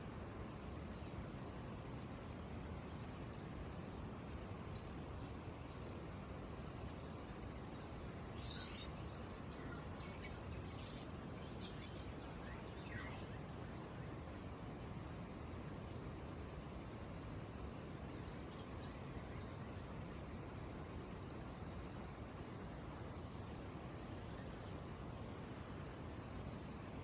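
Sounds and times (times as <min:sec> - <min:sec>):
low background noise: 0:00.0 - 0:27.0
caged birds chirping: 0:00.8 - 0:23.3
downward-sweeping bird calls: 0:08.4 - 0:14.4.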